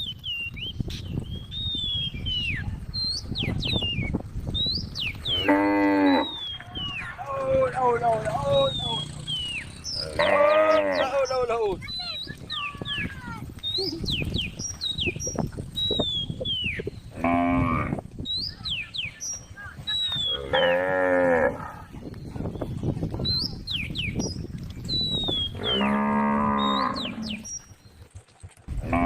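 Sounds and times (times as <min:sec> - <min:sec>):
birds chirping: 0:00.0 - 0:28.2
cow mooing: 0:05.3 - 0:06.4, 0:10.0 - 0:11.2, 0:17.2 - 0:18.0, 0:20.4 - 0:21.8, 0:25.6 - 0:27.5.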